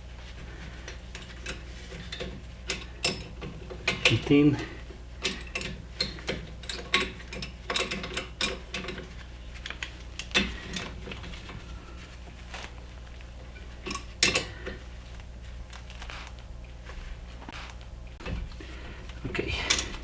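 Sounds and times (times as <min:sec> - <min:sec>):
metal tools clinking on brake caliper: 0:01.2 - 0:09.1.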